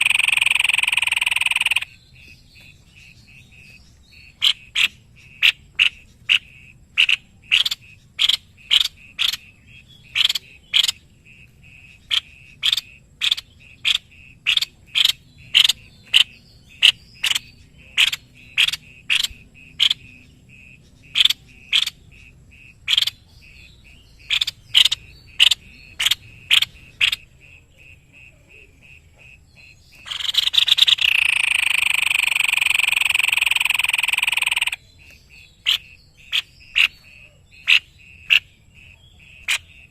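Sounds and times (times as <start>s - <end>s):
bird giving sharp call notes: 0.0s - 1.9s, 30.0s - 34.9s.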